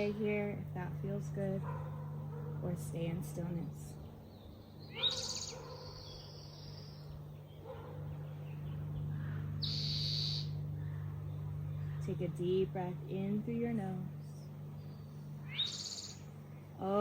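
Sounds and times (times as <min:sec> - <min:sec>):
steady low hum: 0:00.0 - 0:17.0
bird high sweeping call: 0:04.8 - 0:07.1, 0:08.6 - 0:11.1, 0:14.8 - 0:16.3
bird buzzy trill: 0:09.2 - 0:11.1, 0:14.7 - 0:16.5.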